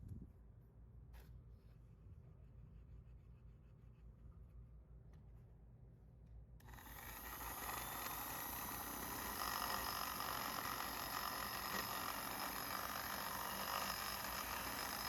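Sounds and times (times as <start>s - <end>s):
electric motor whining: 6.7s - 15.0s.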